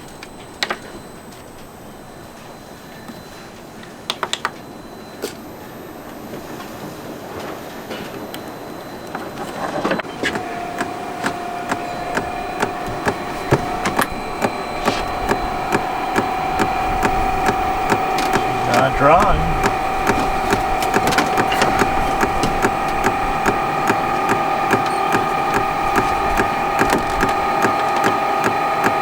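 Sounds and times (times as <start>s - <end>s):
heater fan humming: 0.0s - 29.0s
fuel pump ticking: 10.2s - 29.0s.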